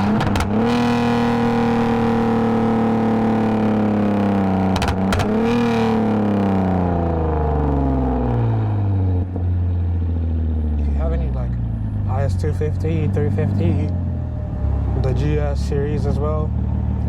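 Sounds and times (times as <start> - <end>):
downshift revs kicking up: 0.0 - 9.5.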